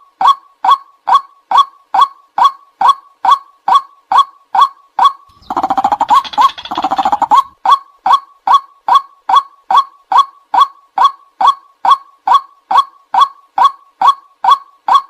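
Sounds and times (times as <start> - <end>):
waterhen croaking calls: 5.3 - 7.6.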